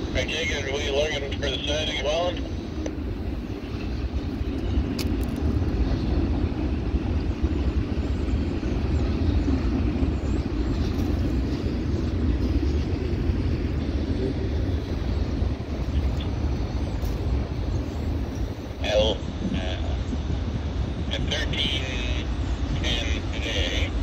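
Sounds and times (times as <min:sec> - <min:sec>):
freight train rumbling past: 0:00.0 - 0:24.0.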